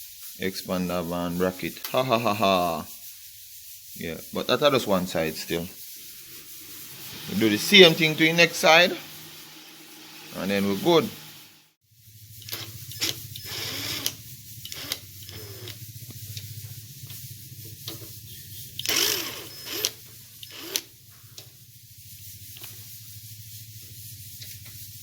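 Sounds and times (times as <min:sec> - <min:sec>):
steady low hum: 0:03.5 - 0:13.6
hand tools and screws clicking: 0:12.4 - 0:17.2, 0:17.8 - 0:21.5.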